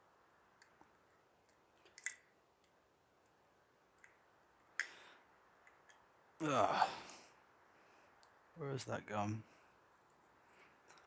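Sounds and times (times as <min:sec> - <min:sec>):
small metal parts clicking: 0:01.5 - 0:02.3.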